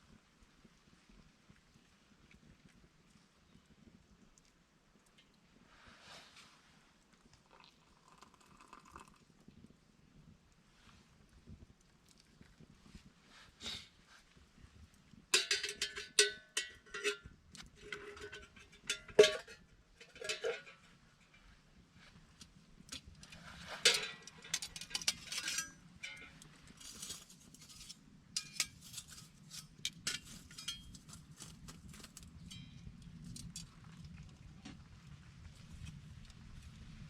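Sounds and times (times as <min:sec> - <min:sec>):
metal objects clinking: 0:15.4 - 0:20.8, 0:23.3 - 0:31.2
faint low rumble: 0:30.2 - 0:37.0.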